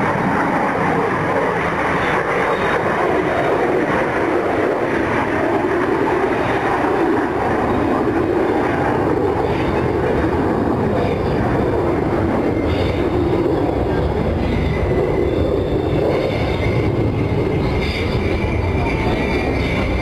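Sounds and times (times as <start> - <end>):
jet engines rumbling: 0.0 - 20.0
faint high whine: 7.7 - 20.0.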